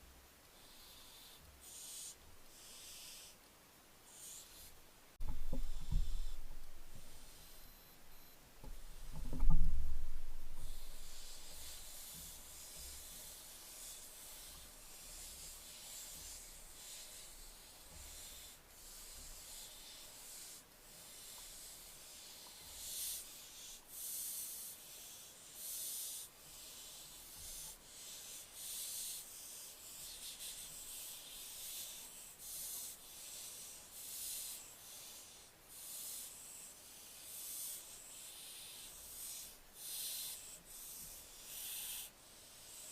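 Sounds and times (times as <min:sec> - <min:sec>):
young owl hissing calls: 0:00.6 - 0:03.4, 0:10.6 - 0:42.9
low thump: 0:05.2 - 0:06.7.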